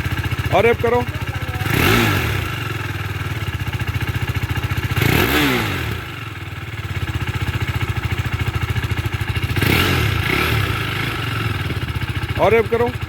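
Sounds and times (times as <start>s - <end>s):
motorcycle engine idling: 0.0s - 13.0s
motorcycle throttle revving: 0.0s - 13.0s.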